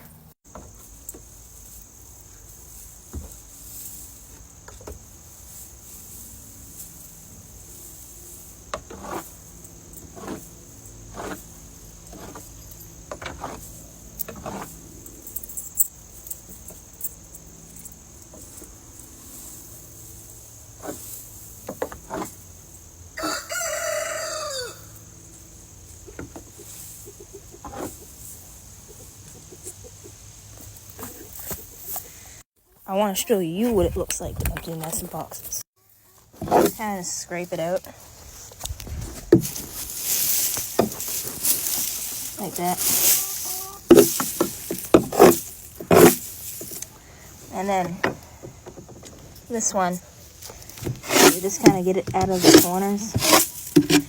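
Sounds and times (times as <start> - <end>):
rooster crowing: 23.2 - 25.0
chickens clucking: 23.2 - 37.8, 39.4 - 54.0.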